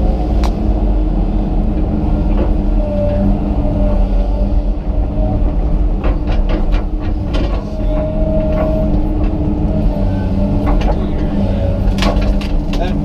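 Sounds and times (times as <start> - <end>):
engine whine: 0.0 - 13.0
excavator diesel engine running: 0.0 - 13.0
sharp cracks and knocks: 11.8 - 13.0.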